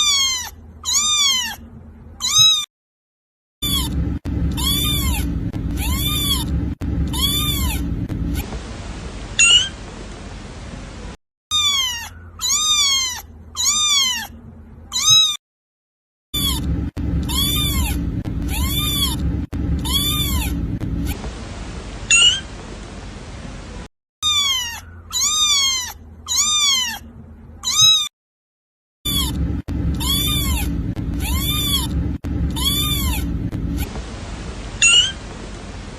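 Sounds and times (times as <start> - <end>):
kitten meowing: 0.0 - 1.6, 2.2 - 2.7, 3.6 - 8.4, 9.4 - 9.7, 11.5 - 15.4, 16.4 - 21.2, 22.1 - 22.4, 24.2 - 27.0, 27.6 - 28.1, 29.1 - 33.9, 34.8 - 35.2.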